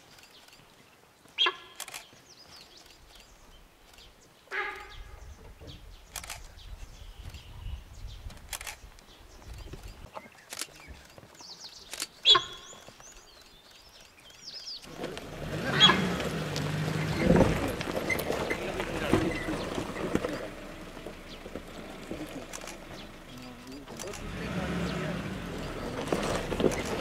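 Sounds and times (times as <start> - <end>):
bird calls: 0.0 - 27.0
sharp clicks: 1.8 - 4.2, 6.1 - 6.5, 8.3 - 14.9, 22.3 - 24.4.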